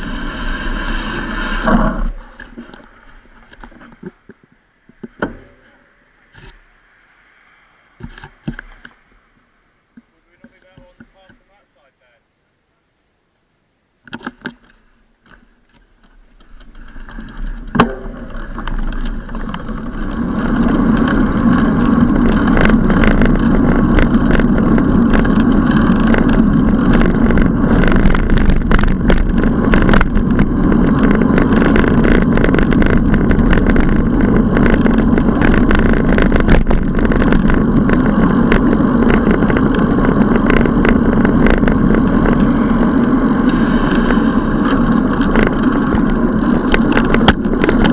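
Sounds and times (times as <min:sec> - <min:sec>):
bicycle rushing and rattling: 0:00.0 - 0:09.6, 0:14.1 - 0:47.9
small clicks and knocks: 0:01.7 - 0:05.6, 0:14.0 - 0:21.6, 0:22.2 - 0:42.5, 0:43.5 - 0:47.9.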